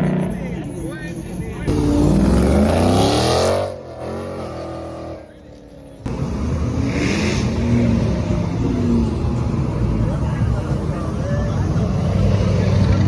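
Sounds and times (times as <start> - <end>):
car engine revving hard: 1.7 - 5.2, 6.1 - 8.2
steady engine rumble: 4.7 - 13.0.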